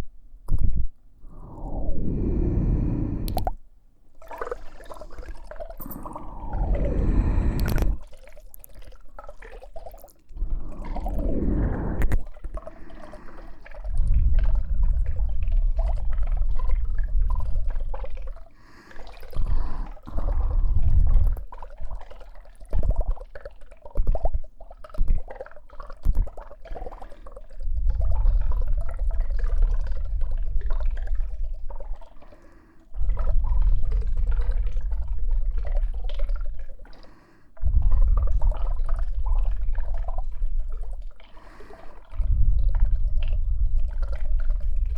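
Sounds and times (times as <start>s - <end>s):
wet liquid sounds: 0.0s - 44.9s
heavy rumbling from microphone contact: 1.2s - 3.6s, 5.8s - 8.0s, 10.3s - 13.1s.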